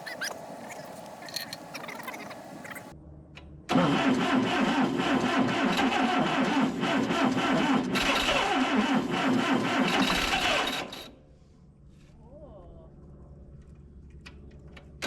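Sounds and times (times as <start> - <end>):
starter cranking tractor engine: 3.7 - 11.1.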